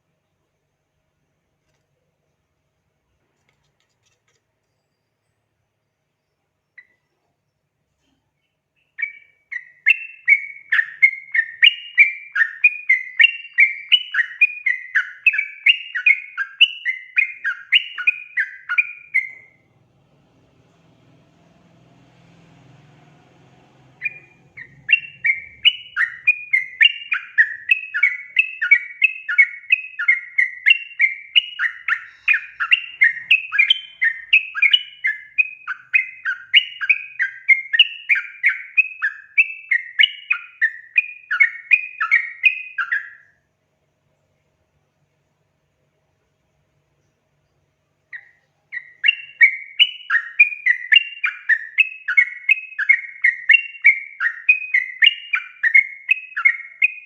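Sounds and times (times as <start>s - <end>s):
bird singing bubbling chatter: 23.7s - 43.3s.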